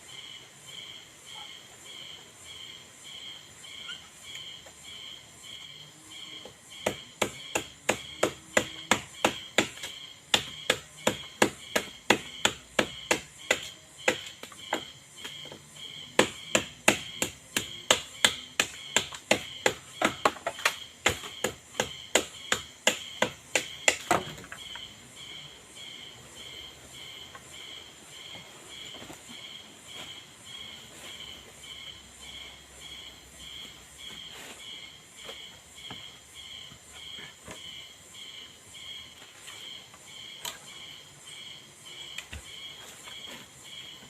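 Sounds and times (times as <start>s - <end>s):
insects chirping: 0.0s - 44.0s
hand tool striking wood: 6.4s - 24.6s.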